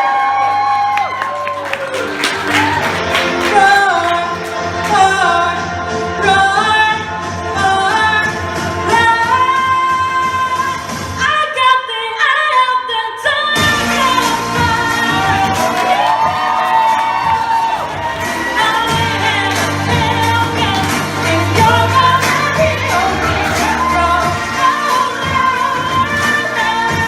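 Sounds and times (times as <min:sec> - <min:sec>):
backing music: 0:00.1 - 0:11.6, 0:13.2 - 0:27.0
women singing pop song: 0:02.3 - 0:27.0.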